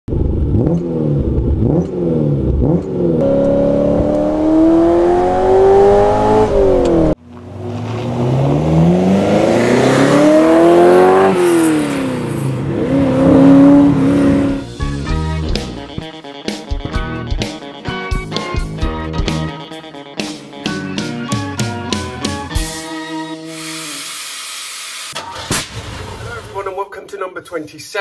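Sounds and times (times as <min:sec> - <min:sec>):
car engine revving: 0:00.1 - 0:14.7.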